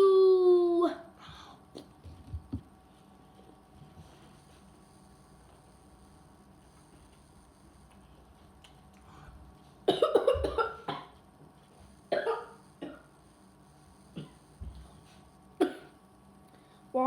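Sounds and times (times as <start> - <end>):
person coughing: 9.9 - 11.2, 12.1 - 13.1, 14.2 - 14.4, 15.6 - 16.0.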